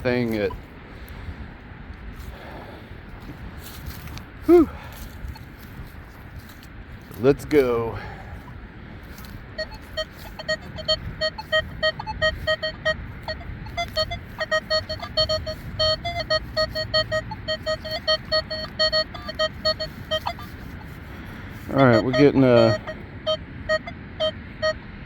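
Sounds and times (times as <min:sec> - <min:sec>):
metal detector beeping: 0:09.2 - 0:21.0, 0:21.6 - 0:24.8.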